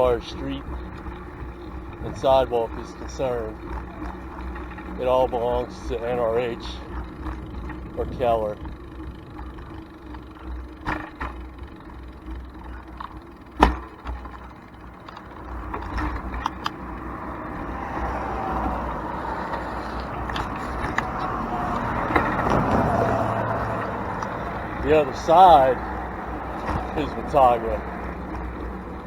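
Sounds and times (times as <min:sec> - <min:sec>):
bicycle clicks: 0:00.0 - 0:29.0
passing vehicle: 0:00.0 - 0:29.0
road traffic rumble: 0:00.0 - 0:29.0.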